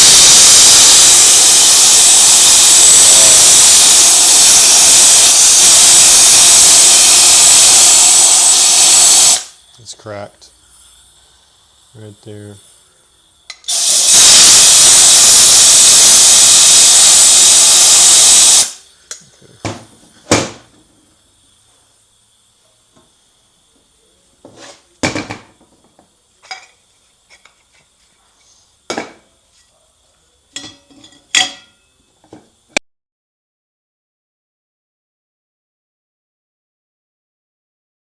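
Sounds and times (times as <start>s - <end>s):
air blow gun hissing: 0.0s - 26.6s
metallic clinks and knocks: 30.6s - 31.9s.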